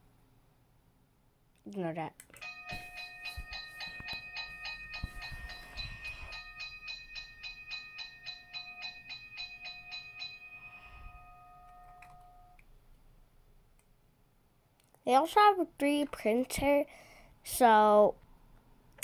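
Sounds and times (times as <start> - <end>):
electronic crossing bell dinging: 2.4 - 12.6
held electronic tone: 2.4 - 12.6.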